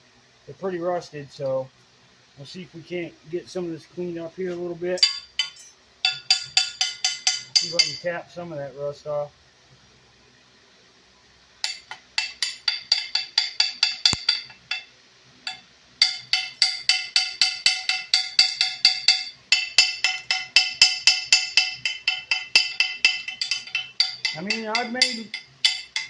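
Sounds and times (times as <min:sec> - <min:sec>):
hammer tapping on metal: 0:05.0 - 0:08.0, 0:11.6 - 0:14.9, 0:15.5 - 0:26.0.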